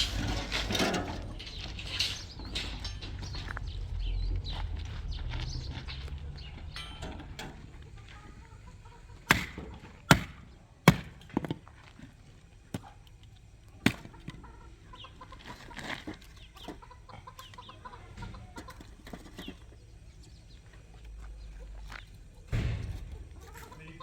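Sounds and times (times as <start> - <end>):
chickens clucking: 0.0 - 11.2, 12.0 - 24.0
sharp knocks: 9.3 - 11.6.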